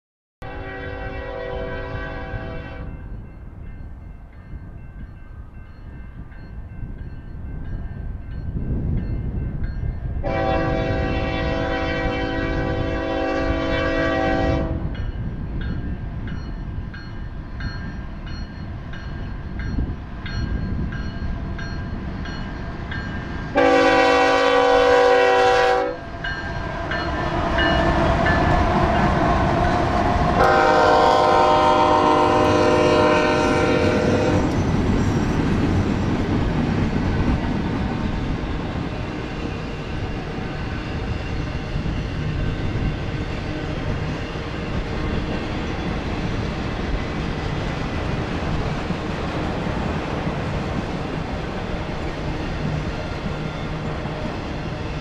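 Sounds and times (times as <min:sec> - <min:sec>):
train air horn blasts: 0:00.4 - 0:02.9, 0:10.2 - 0:15.0, 0:23.5 - 0:34.6
locomotive engines rumbling: 0:18.5 - 0:55.0.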